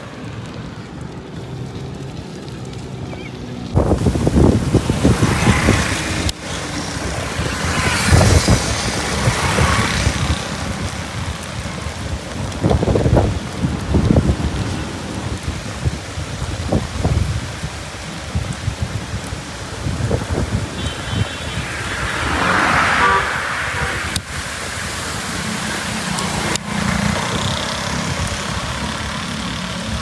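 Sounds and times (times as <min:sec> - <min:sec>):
road noise rushing: 0:00.0 - 0:30.0
wind buffeting microphone: 0:03.7 - 0:26.0.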